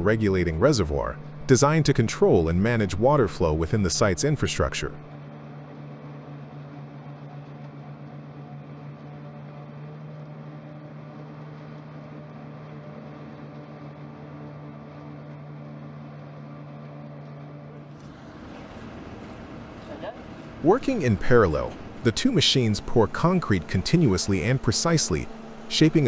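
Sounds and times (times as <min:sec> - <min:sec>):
paving machine engine running: 0:00.0 - 0:05.3, 0:17.2 - 0:26.0.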